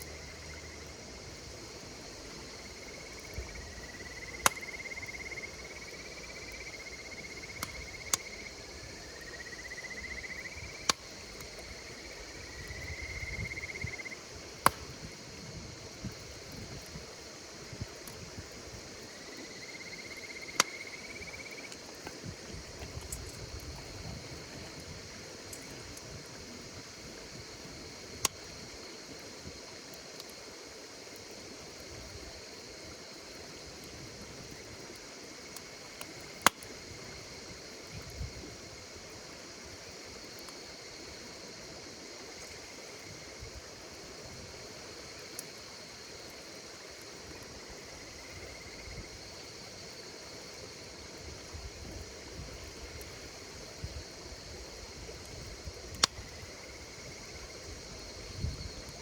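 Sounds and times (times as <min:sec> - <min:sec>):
campfire crackling: 0:00.0 - 0:59.0
insects chirring: 0:00.0 - 0:59.0
loud sharp fire pops: 0:04.4 - 0:04.8, 0:14.6 - 0:15.2, 0:55.9 - 0:56.2.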